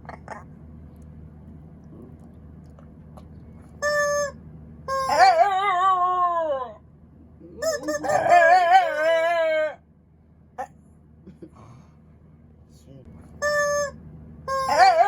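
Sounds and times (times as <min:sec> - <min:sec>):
squeaky toy squeak: 0:03.8 - 0:05.6, 0:07.6 - 0:09.2, 0:13.4 - 0:15.0
dog howling: 0:04.9 - 0:06.8, 0:07.6 - 0:09.8, 0:14.5 - 0:15.0.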